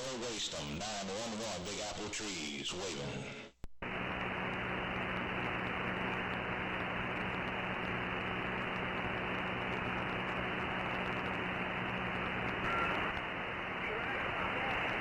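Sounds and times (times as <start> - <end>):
radio static hiss: 0.0 - 15.0
faint low hum: 3.8 - 15.0.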